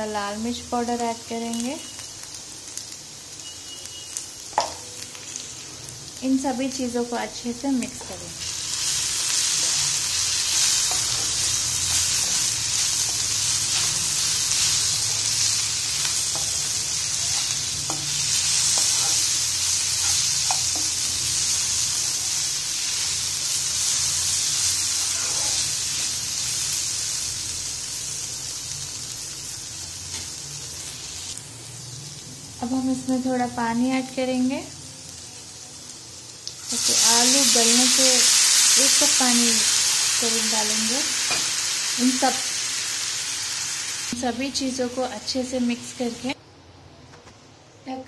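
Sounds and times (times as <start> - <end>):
vegetables sizzling in oil: 0.0 - 46.4
spoon scraping a pan: 16.2 - 21.1, 25.0 - 25.8.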